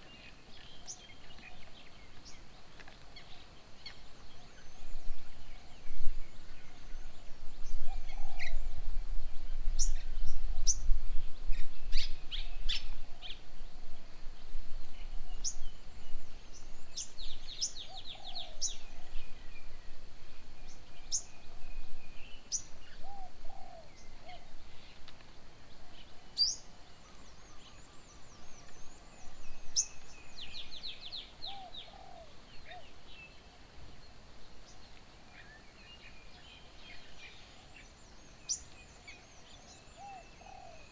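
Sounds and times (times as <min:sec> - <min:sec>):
birds chirping: 0:25.7 - 0:40.9.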